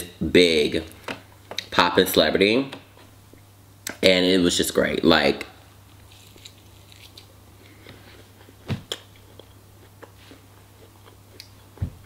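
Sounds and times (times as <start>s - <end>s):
person chewing: 5.9s - 11.8s.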